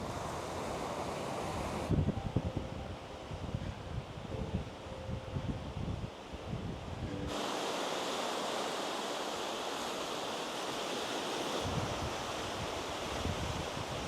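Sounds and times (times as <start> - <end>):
breaking ocean waves: 0.0 - 2.0, 6.1 - 14.0
wind buffeting microphone: 1.4 - 7.4, 11.6 - 14.0.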